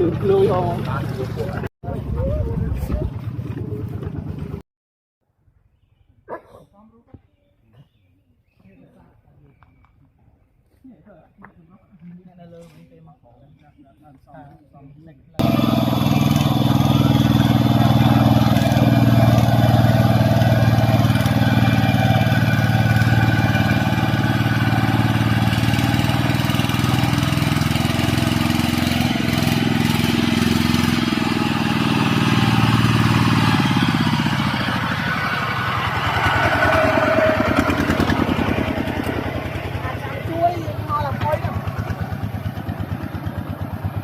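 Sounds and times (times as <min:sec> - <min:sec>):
vehicle engine driving: 0:00.0 - 0:04.6, 0:15.4 - 0:44.0.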